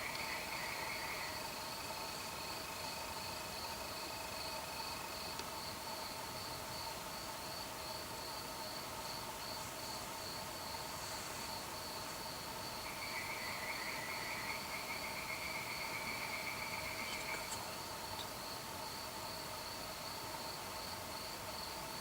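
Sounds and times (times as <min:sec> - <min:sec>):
crickets trilling: 0:00.0 - 0:22.0
lower insect trill: 0:00.0 - 0:22.0.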